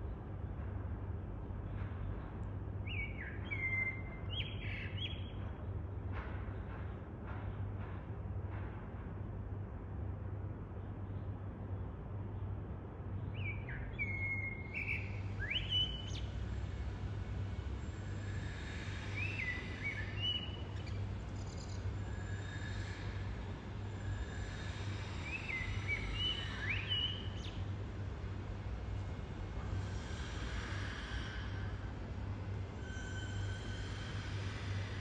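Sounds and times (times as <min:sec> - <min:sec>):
steady low hum: 0:00.0 - 0:35.0
blackbird singing: 0:02.9 - 0:05.4, 0:13.3 - 0:16.3, 0:19.2 - 0:21.5, 0:25.3 - 0:27.6.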